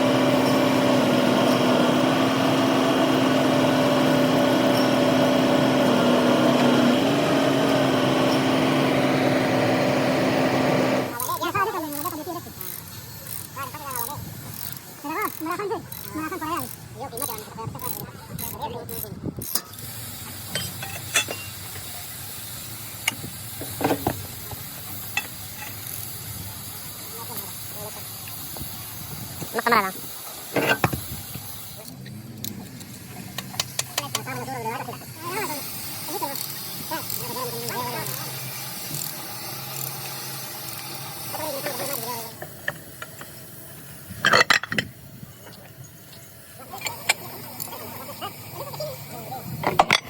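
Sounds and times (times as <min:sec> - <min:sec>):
steady hissing noise: 0:19.5 - 0:50.0
sharp clinks and knocks: 0:20.5 - 0:21.9.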